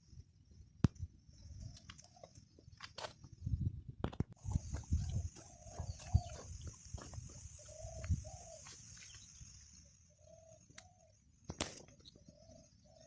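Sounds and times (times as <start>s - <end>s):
dove cooing: 4.5s - 8.8s, 10.2s - 11.1s.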